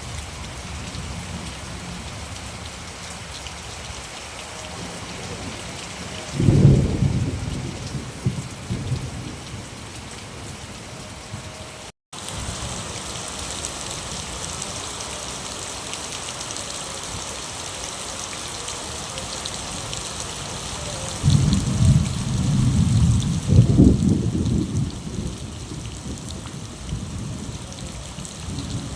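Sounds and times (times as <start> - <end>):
steady rain falling: 0.0 - 28.9
low rumble of thunder: 4.8 - 11.6, 20.9 - 28.9.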